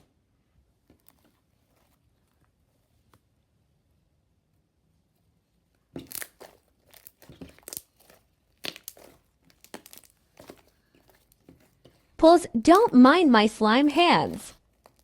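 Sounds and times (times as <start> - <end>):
slime crackling and tearing: 6.0 - 11.7, 14.5 - 15.0.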